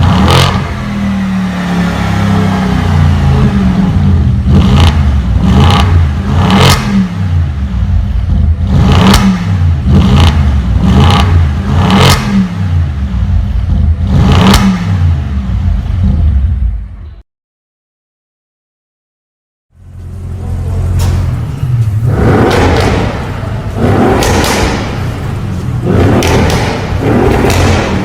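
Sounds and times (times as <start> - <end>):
car engine revving: 0.0 - 17.0, 19.8 - 28.0
exhaust cracks: 2.0 - 16.7, 19.8 - 28.0.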